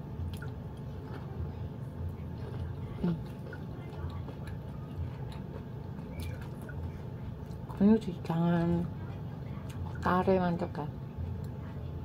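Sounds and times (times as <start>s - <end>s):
person chewing: 0.2s - 7.6s.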